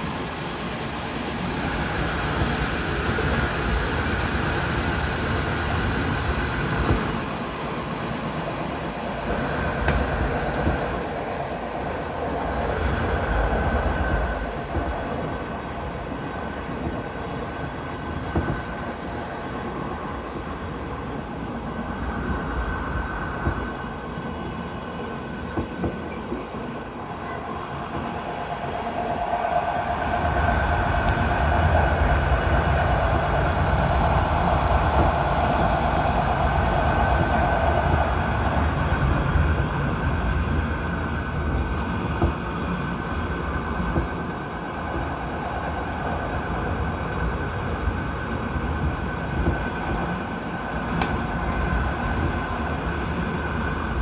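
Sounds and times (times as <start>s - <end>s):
faint whining tones: 0.0s - 54.0s
train wheels rumbling on rails: 0.0s - 54.0s.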